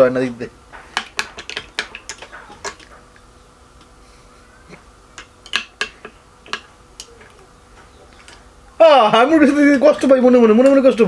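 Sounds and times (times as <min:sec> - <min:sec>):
dishes clinking: 0:00.7 - 0:03.2, 0:04.6 - 0:08.5.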